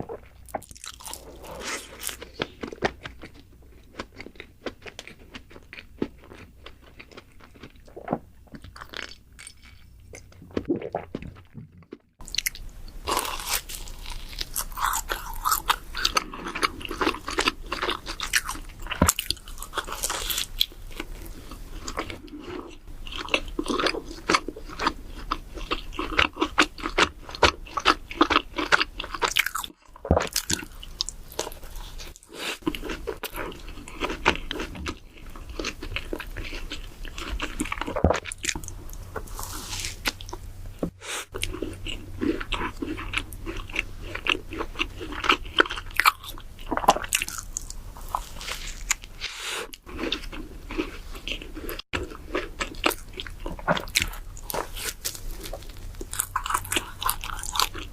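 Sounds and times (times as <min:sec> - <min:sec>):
biting and chewing doughnuts: 0:00.0 - 0:57.9.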